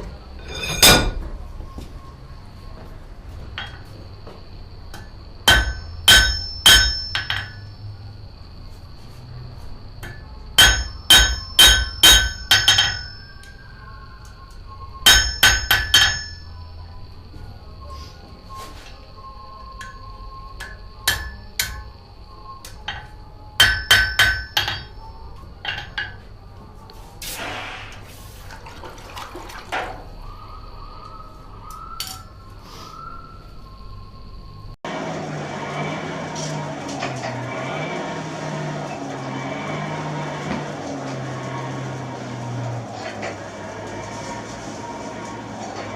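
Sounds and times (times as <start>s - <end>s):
hammer striking anvil: 0.4s - 1.2s, 4.9s - 7.8s, 10.0s - 13.5s, 15.0s - 16.6s, 20.6s - 22.0s, 22.8s - 25.0s
sharp metal clinks: 5.5s - 8.0s, 15.1s - 16.6s.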